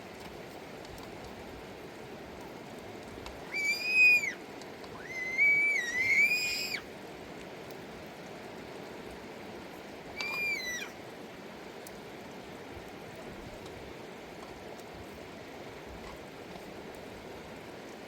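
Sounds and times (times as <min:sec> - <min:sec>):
river water rushing: 0:01.4 - 0:18.0
high whistle-like calls: 0:03.4 - 0:04.4, 0:05.0 - 0:06.9, 0:10.1 - 0:11.0.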